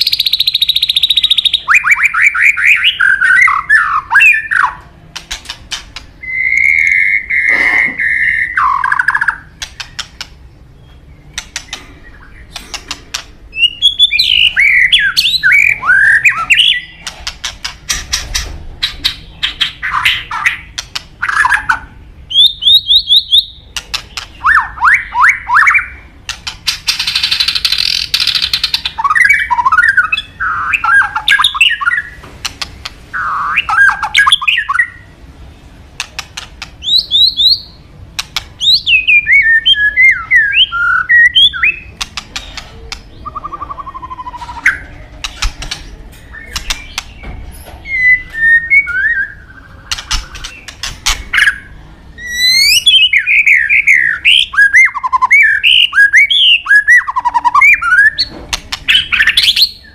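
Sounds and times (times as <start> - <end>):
bird singing warbled whistles: 0.0 - 4.8, 6.2 - 10.0, 13.5 - 17.0, 19.5 - 23.6, 24.4 - 26.0, 33.2 - 35.0, 36.8 - 37.8, 38.6 - 42.0, 43.2 - 44.9, 47.9 - 50.5, 51.3 - 58.3, 58.9 - 59.9
sharp clicks: 5.1 - 6.7, 9.6 - 10.4, 11.3 - 13.4, 36.0 - 36.8, 38.1 - 38.6, 42.0 - 43.1, 44.5 - 47.4, 49.9 - 51.3.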